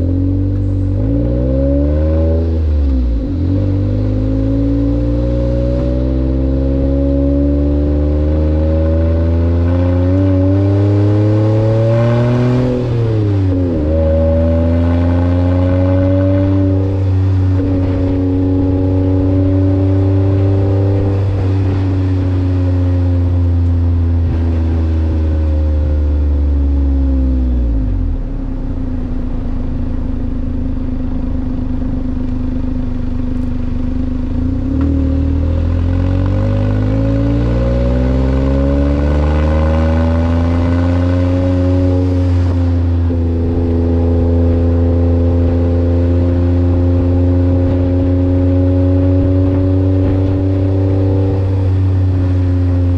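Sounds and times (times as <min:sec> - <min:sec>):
small truck engine revving: 0:34.1 - 0:52.9.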